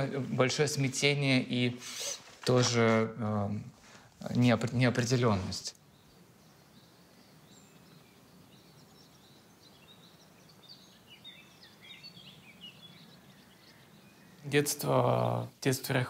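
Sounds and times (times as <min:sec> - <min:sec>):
faint birdsong chirps: 0:00.0 - 0:16.0.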